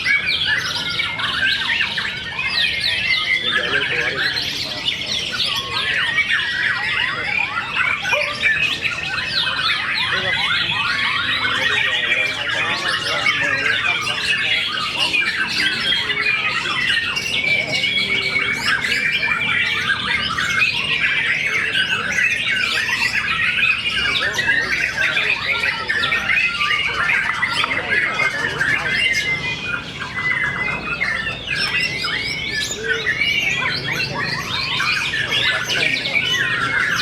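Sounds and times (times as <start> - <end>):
songbirds chorus: 0.0 - 37.0.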